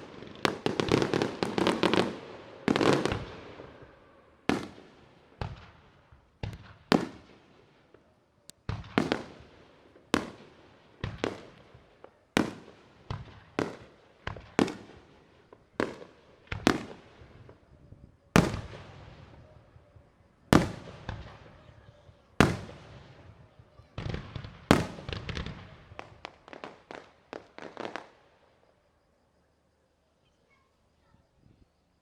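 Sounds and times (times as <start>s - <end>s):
firework shells bursting: 18.4s - 19.5s, 20.5s - 21.7s, 22.4s - 23.4s, 24.0s - 28.0s.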